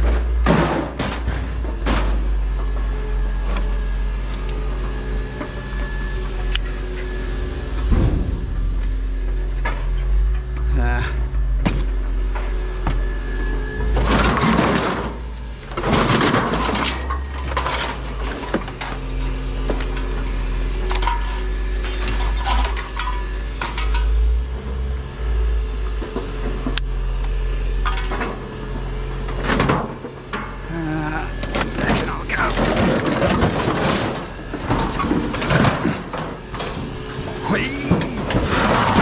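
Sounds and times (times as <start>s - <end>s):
low hum: 0.0s - 39.0s
plastic items and cables clattering: 15.8s - 19.9s.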